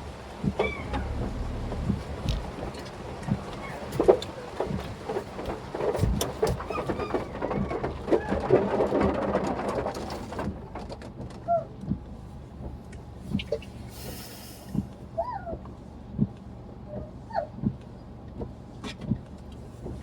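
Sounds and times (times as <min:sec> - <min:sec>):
car hum: 0:00.1 - 0:03.9
rain patter on car: 0:00.2 - 0:12.9.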